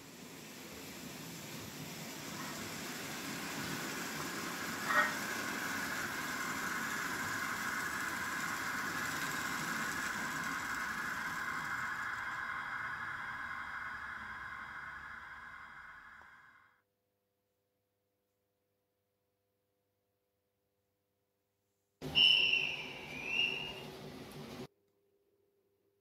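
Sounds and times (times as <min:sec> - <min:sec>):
model train motor whine and wheel rumble: 0:00.0 - 0:16.7.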